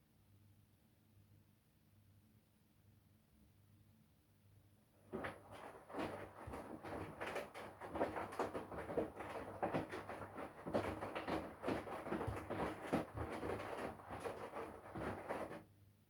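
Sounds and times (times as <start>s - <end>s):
soft thuds of clothes: 5.1s - 15.6s
washing machine motor hum: 5.1s - 15.6s.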